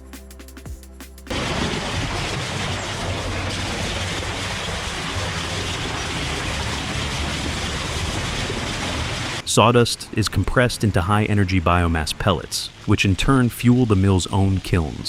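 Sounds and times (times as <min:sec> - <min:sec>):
heavy machinery rumbling: 0:01.3 - 0:09.6.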